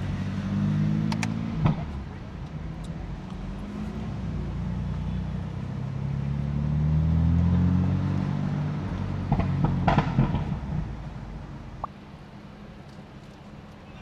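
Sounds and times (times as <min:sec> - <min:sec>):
car engine accelerating: 0:00.0 - 0:11.9
exhaust pops and crackles: 0:09.2 - 0:10.9.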